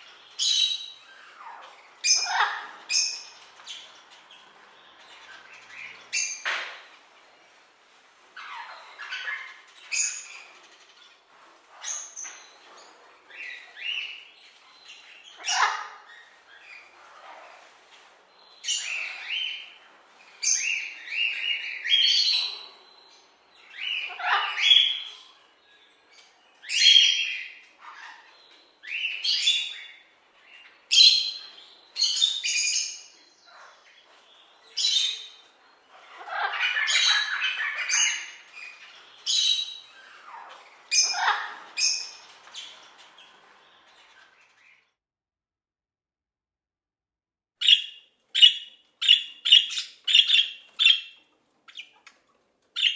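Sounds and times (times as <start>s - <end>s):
parrot squawking: 1.2s - 3.0s, 15.4s - 16.1s, 23.8s - 25.1s, 35.9s - 42.3s, 47.6s - 52.1s.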